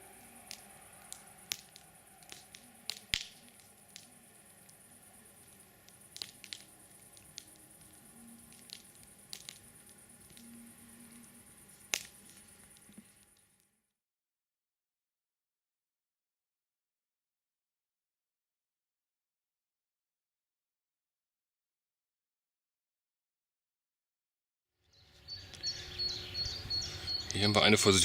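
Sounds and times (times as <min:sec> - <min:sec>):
campfire crackling: 0:00.0 - 0:13.7.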